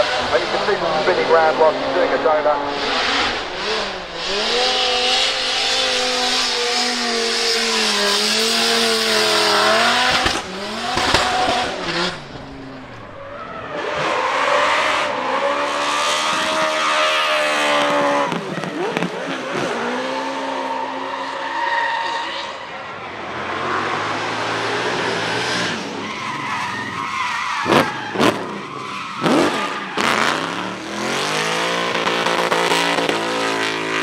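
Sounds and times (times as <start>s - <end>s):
tyres screeching: 0.0s - 13.6s
car engine at high revs: 0.0s - 34.0s
sharp cracks: 9.8s - 13.0s.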